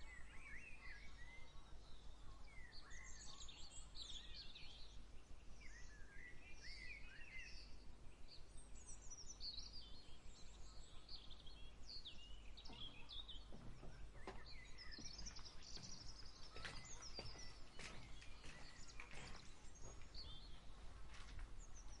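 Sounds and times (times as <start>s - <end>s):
small birds chirping: 0.0s - 22.0s
soft rustling footsteps: 12.5s - 22.0s.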